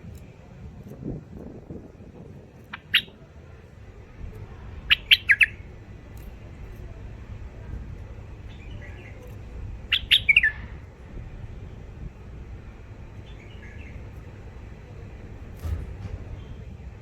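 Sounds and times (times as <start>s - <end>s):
bulbuls calling: 2.6s - 3.3s, 4.6s - 7.3s, 8.1s - 11.1s.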